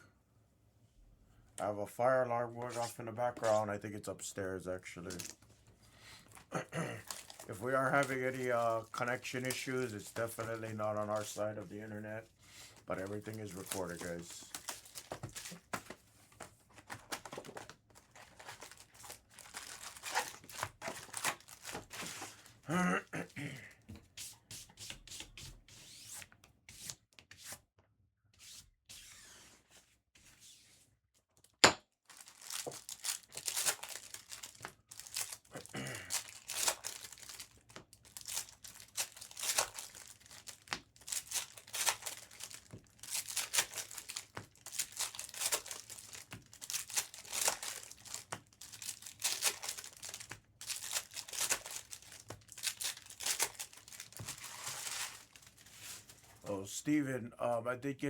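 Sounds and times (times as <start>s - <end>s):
foil wrappers tearing and crinkling: 5.1s - 5.4s, 6.9s - 11.9s, 12.9s - 15.8s, 16.8s - 22.6s, 32.1s - 56.4s.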